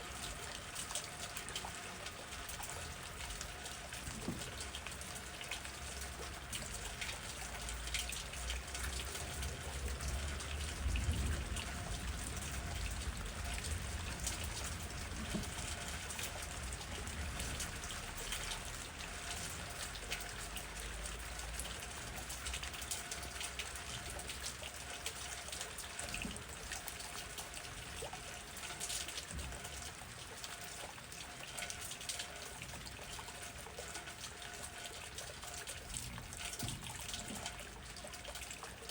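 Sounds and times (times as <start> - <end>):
rain drops ticking: 0.0 - 38.9
low rumble of wind: 6.5 - 19.0.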